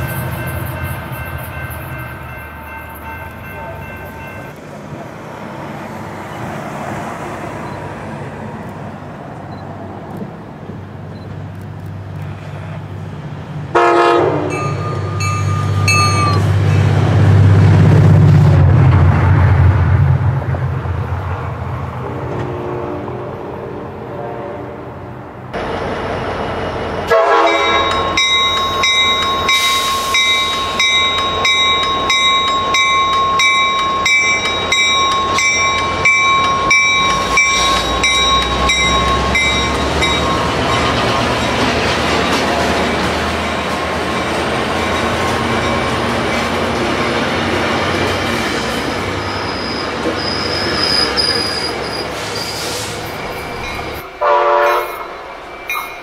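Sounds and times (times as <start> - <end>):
rushing rumble of train cars: 0.0 - 56.0
train horn blast: 13.7 - 14.7, 22.2 - 25.1, 27.1 - 28.0, 54.2 - 55.1
high wheel squeal: 48.8 - 56.0.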